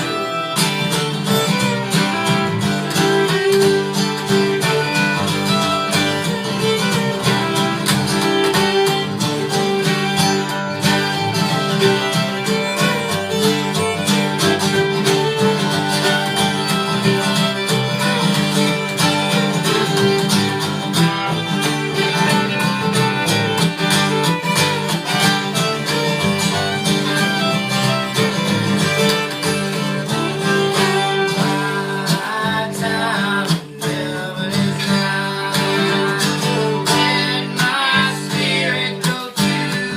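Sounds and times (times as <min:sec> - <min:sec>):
fiddle: 0:00.0 - 0:39.9
plucked guitar: 0:00.0 - 0:39.9.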